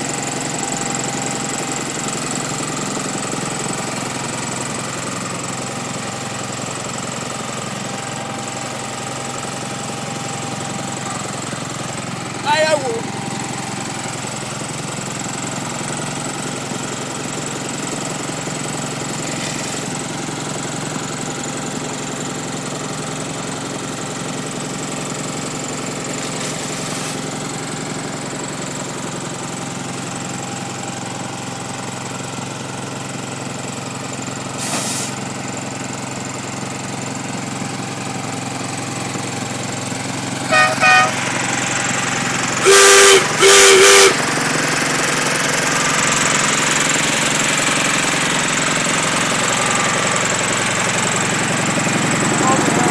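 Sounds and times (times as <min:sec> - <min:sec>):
small engine idling: 0:00.0 - 0:52.9
whistle toots: 0:42.6 - 0:44.2.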